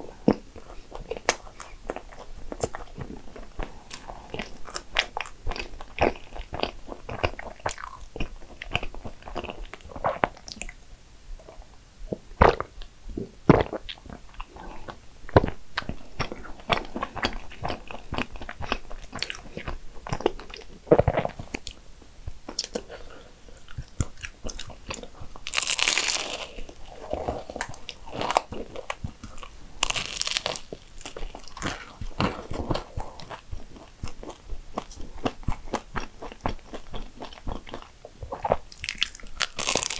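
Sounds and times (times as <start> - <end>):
person chewing pastry: 0.0 - 10.8, 11.4 - 39.9
crackling bursts: 25.4 - 32.6.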